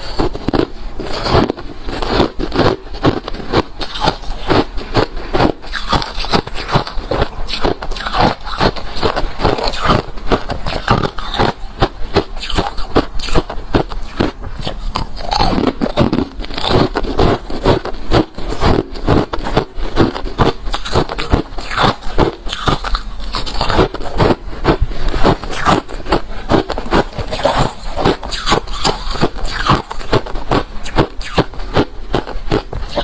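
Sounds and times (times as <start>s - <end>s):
ice crunching while chewed: 0.0s - 33.0s.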